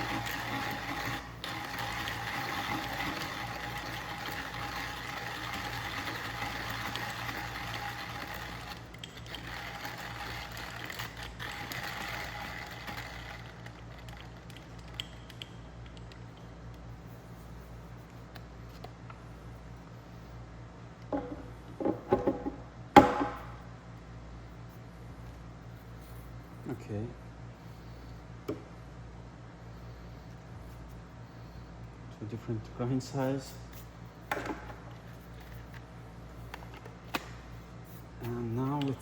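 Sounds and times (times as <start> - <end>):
hand grinder crushing coffee beans: 0.0 - 15.1.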